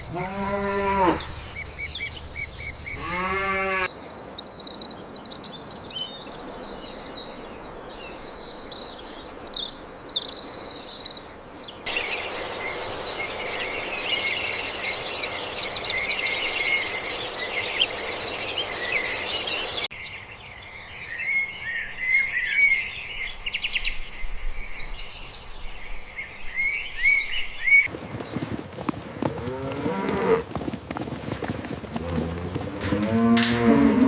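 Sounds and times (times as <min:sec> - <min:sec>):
songbirds singing and chirping: 0:00.0 - 0:34.0
steady background hiss: 0:11.8 - 0:19.9.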